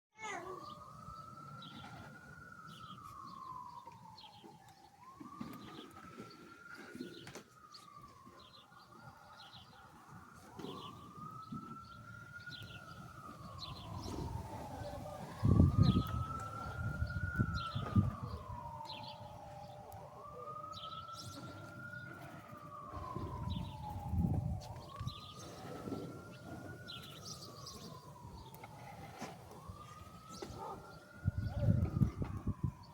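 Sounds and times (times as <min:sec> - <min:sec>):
emergency siren wailing: 0:00.2 - 0:32.9
small birds chirping: 0:07.0 - 0:29.0.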